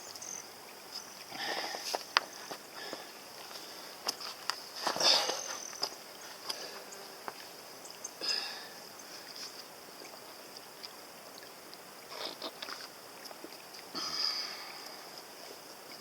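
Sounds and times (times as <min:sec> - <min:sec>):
insects chirring: 0:00.0 - 0:16.0
crunching sounds: 0:11.7 - 0:13.9.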